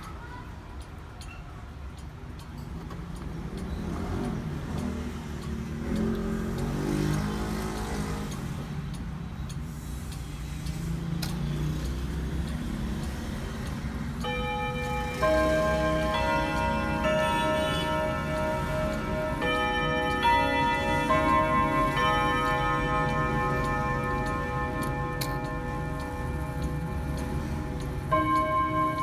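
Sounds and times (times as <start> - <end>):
clock ticking: 0.0 - 29.0
low traffic rumble: 0.0 - 29.0
clock chime rods ringing: 12.3 - 29.0.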